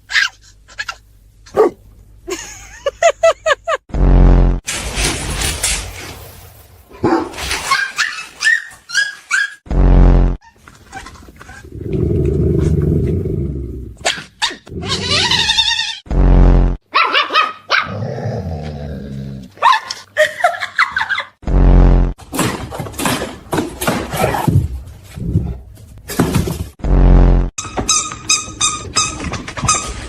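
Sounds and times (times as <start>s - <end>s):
dog whining and yapping: 7.6s - 9.6s.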